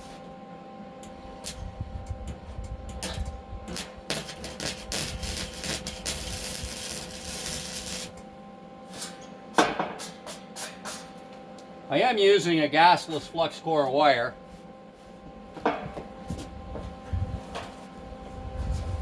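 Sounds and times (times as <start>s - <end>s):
welding arc crackling: 1.4s - 8.2s.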